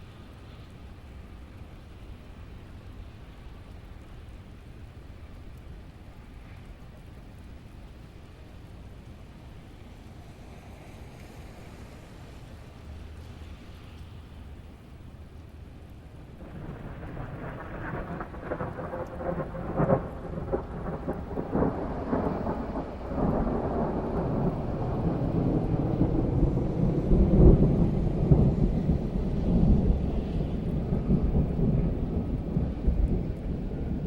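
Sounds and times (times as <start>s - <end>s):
steady rain: 0.0s - 34.0s
thunder rumbling: 16.4s - 34.0s.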